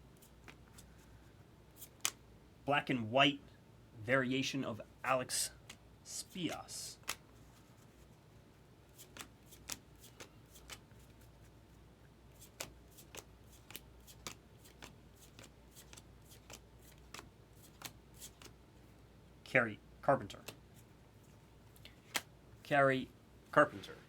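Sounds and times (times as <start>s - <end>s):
trading cards snapping: 0.3s - 0.9s, 1.8s - 2.2s, 7.0s - 7.2s, 9.0s - 11.1s, 12.4s - 18.6s, 21.9s - 22.3s.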